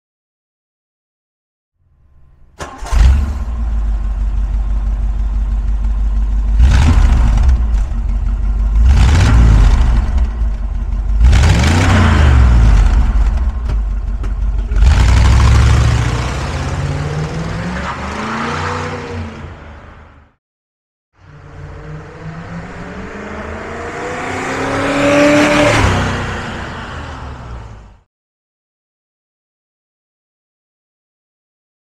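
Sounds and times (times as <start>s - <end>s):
car engine idling and revving: 2.0s - 20.4s, 21.2s - 28.0s
car engine starting: 2.1s - 19.7s
car engine accelerating: 2.6s - 19.8s, 21.2s - 28.0s.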